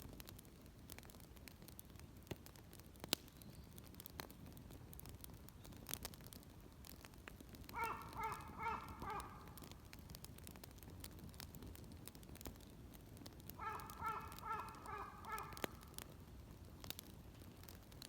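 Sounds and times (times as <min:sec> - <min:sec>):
crow cawing: 0:07.8 - 0:09.5, 0:13.6 - 0:15.8.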